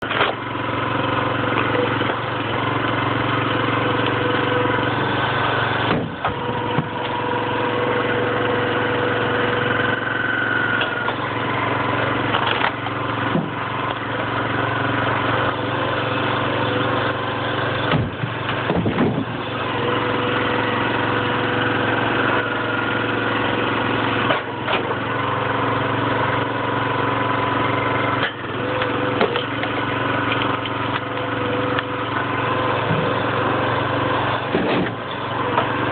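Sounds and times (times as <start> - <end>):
wood cracking and splitting: 0.0 - 8.1, 9.2 - 35.9
log splitter engine running: 0.0 - 35.9
wood pieces dropping: 12.2 - 14.1.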